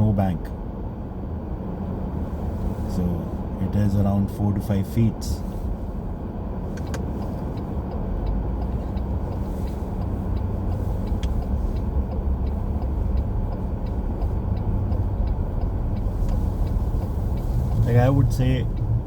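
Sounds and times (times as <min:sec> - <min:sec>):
car interior rumble: 0:00.0 - 0:19.0
faint regular ticking: 0:06.7 - 0:19.0.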